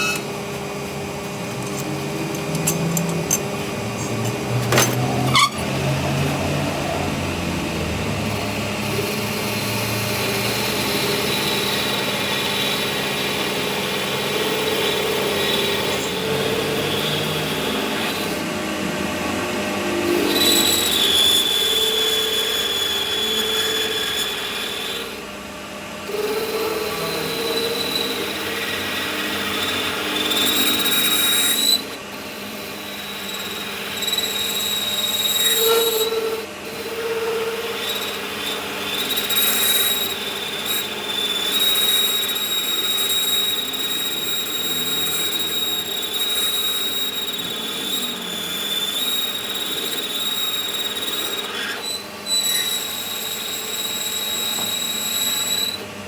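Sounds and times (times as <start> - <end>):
power tool whining on metal: 0.0 - 56.0
harsh metal scraping: 1.2 - 7.0.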